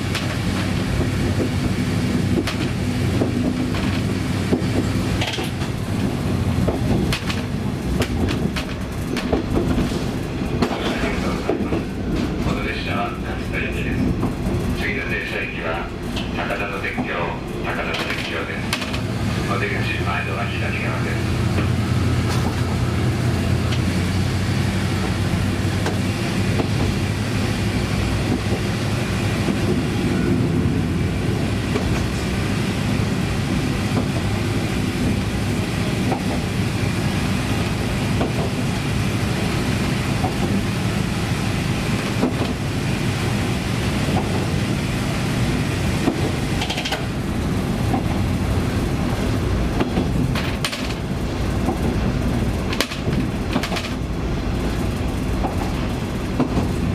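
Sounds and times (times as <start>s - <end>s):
wheels clicking over rail joints: 0.0s - 12.5s, 17.8s - 19.1s, 21.4s - 24.0s, 41.8s - 43.0s, 46.0s - 48.4s, 49.0s - 56.9s
diesel railcar engine running: 0.0s - 56.9s.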